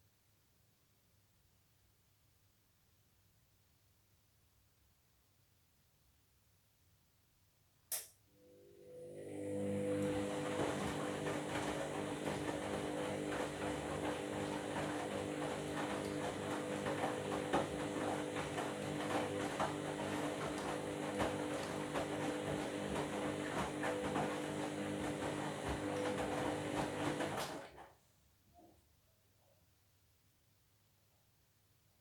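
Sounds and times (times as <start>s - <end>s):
washing machine motor hum: 8.4s - 27.8s.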